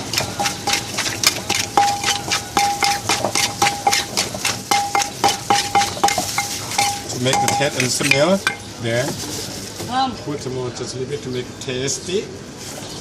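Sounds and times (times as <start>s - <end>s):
pestle pounding in a mortar: 0.0s - 8.6s.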